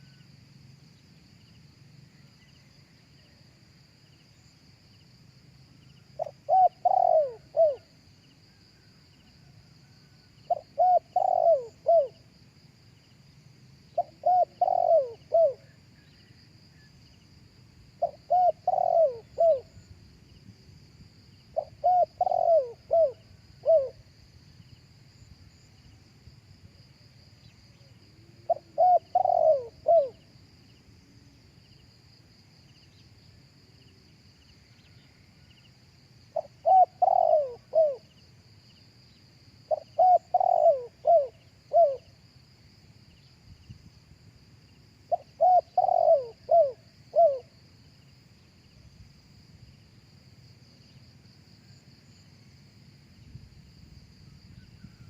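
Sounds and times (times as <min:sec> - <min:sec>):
high insect drone: 0:00.0 - 0:55.0
dove cooing: 0:06.2 - 0:07.9, 0:10.5 - 0:12.2, 0:14.0 - 0:15.8, 0:18.0 - 0:19.8, 0:21.5 - 0:24.0, 0:28.2 - 0:30.2, 0:36.3 - 0:38.1, 0:39.7 - 0:42.2, 0:45.1 - 0:47.5.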